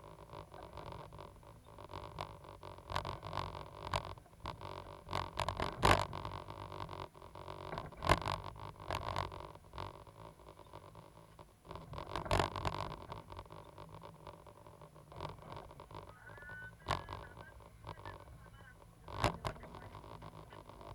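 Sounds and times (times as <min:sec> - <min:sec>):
excavator engine hum: 0:11.8 - 0:20.9.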